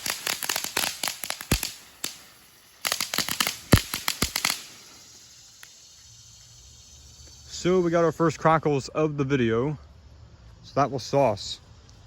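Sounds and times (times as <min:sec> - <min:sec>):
crackling firework: 0:00.0 - 0:08.1.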